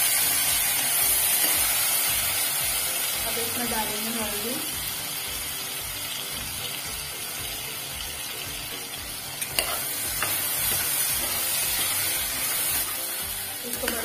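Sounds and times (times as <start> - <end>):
food sizzling in hot oil: 0.0 - 14.0
spatula stirring: 9.4 - 12.9.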